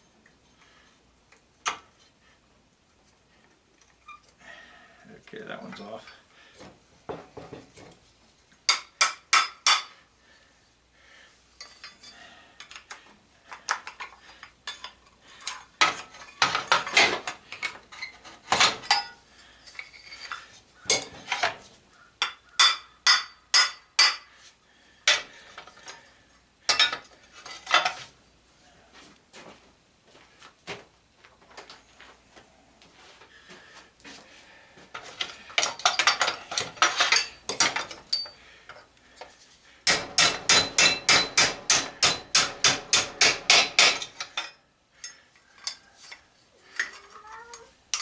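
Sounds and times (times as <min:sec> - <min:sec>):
hand tools tapping on metal: 0:08.6 - 0:10.0, 0:11.6 - 0:21.6, 0:22.2 - 0:24.3, 0:25.0 - 0:26.1, 0:26.7 - 0:28.0, 0:34.9 - 0:48.0.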